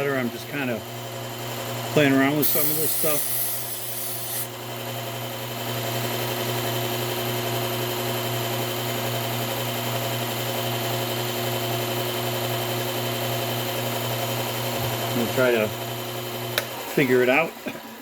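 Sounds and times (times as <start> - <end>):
belt sharpener motor whirring: 2.3 - 4.6.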